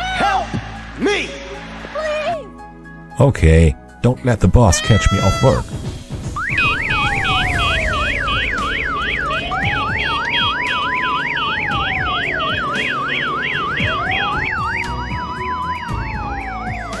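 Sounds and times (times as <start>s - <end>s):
police siren yelp and wail: 6.4s - 17.0s.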